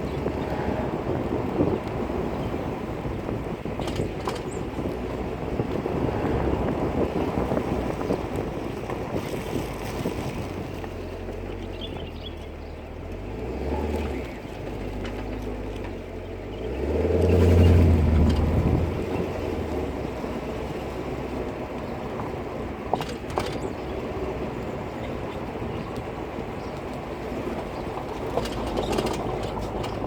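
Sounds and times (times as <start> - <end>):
car engine: 0.0 - 30.0
road and tyre rumble: 0.0 - 30.0.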